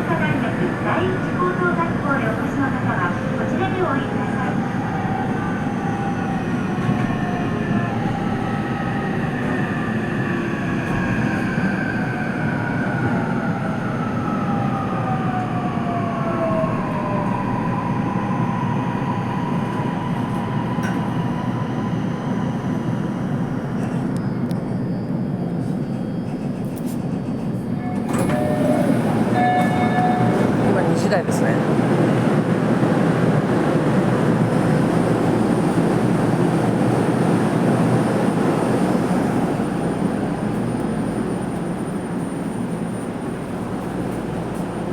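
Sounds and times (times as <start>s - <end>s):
train motor whine: 27.8s - 30.6s.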